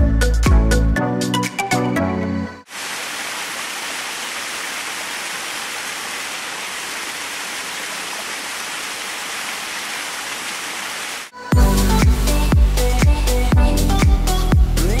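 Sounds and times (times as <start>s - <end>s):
waterfall roaring: 2.7s - 11.3s.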